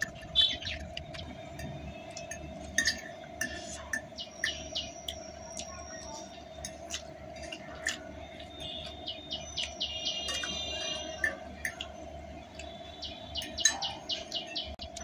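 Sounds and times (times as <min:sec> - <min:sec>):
chewing noodles: 0:00.0 - 0:13.0
steady hum: 0:00.0 - 0:15.0
bird chirping high notes: 0:03.8 - 0:06.5, 0:08.4 - 0:12.1, 0:12.7 - 0:14.8.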